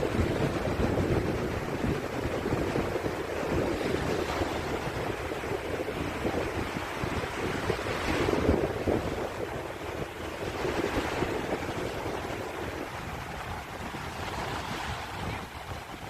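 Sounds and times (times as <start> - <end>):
sea waves washing on beach: 0.0 - 16.0
wind buffeting microphone: 0.0 - 16.0.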